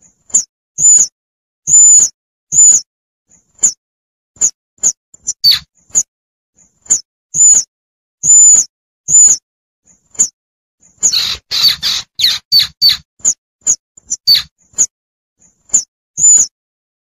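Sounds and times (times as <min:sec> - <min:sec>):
squirrel lure call chirps: 0:05.2 - 0:05.7, 0:11.0 - 0:13.0, 0:14.1 - 0:14.5.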